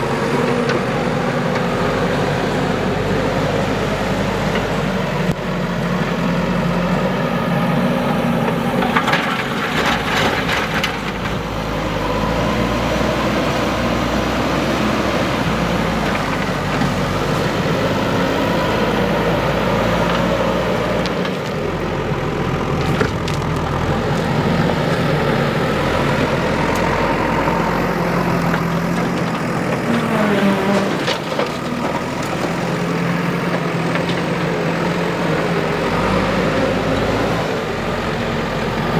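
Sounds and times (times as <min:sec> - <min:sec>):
diesel engine under load: 0:00.0 - 0:38.9
crackling crunching noises: 0:19.3 - 0:36.4.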